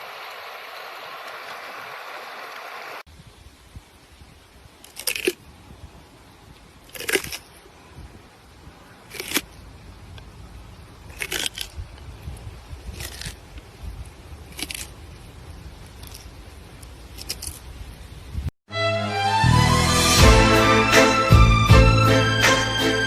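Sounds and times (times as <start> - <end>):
short crunching sounds: 4.8 - 5.4, 6.8 - 7.7, 9.0 - 10.3, 11.0 - 15.2, 15.8 - 17.7.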